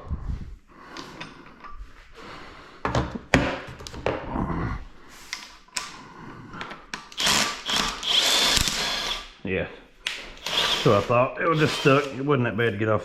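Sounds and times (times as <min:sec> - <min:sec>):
metal tools clinking and knocking: 0:01.0 - 0:01.8.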